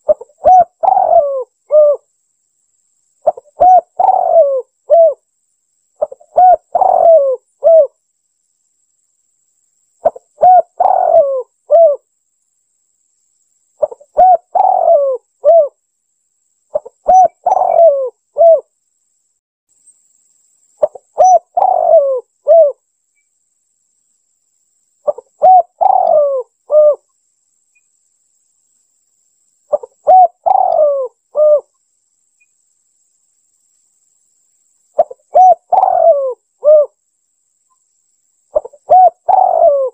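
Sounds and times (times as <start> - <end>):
dove cooing: 0.0 - 2.1, 3.2 - 5.2, 6.0 - 7.9, 10.0 - 12.1, 13.8 - 15.8, 16.7 - 18.7, 20.8 - 22.8, 25.0 - 27.0, 29.7 - 31.7, 35.0 - 37.0, 38.5 - 39.9.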